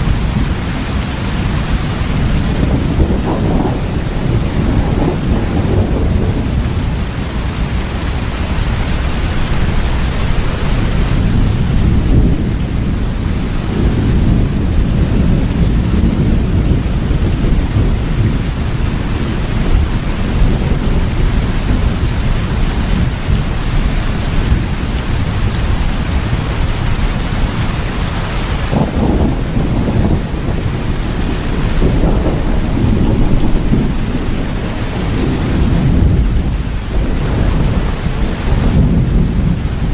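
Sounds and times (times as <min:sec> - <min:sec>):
deep rumble: 0:00.0 - 0:39.9
heavy rain: 0:00.0 - 0:39.9.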